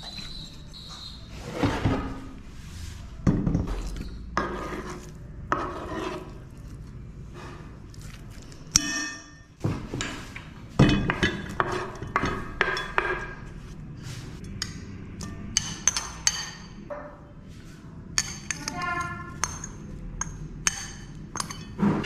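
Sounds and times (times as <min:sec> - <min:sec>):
hard objects clinking: 0:18.1 - 0:22.0.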